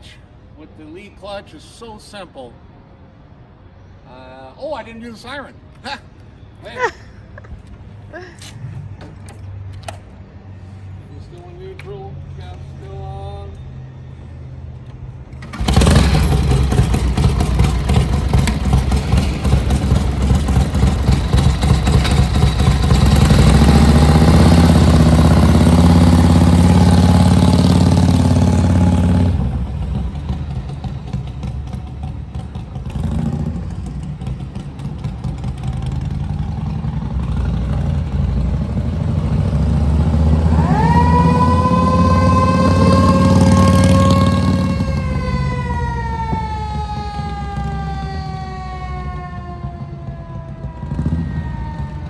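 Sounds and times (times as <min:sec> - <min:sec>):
motorcycle engine starting and idling: 0:15.3 - 0:40.7
police siren wailing: 0:40.3 - 0:52.0.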